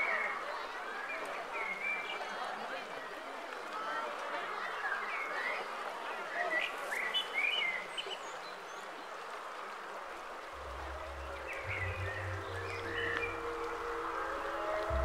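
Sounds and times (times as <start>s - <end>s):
music with low steady tones: 10.6s - 15.0s.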